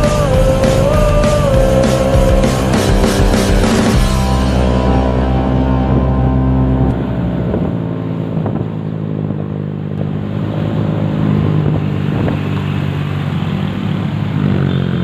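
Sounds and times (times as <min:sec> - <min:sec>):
deep bass: 0:00.0 - 0:13.3
vehicle engines running: 0:00.0 - 0:15.0.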